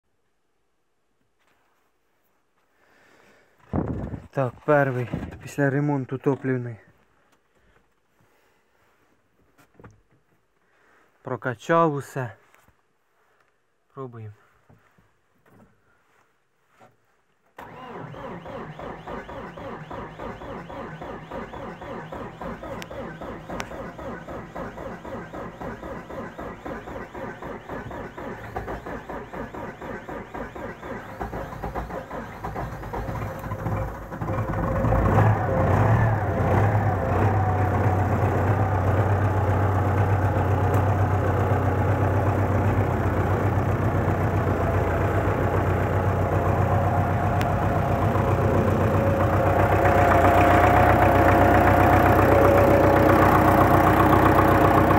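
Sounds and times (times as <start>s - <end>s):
diesel engine cranking and idling: 3.6s - 7.0s, 17.6s - 54.9s.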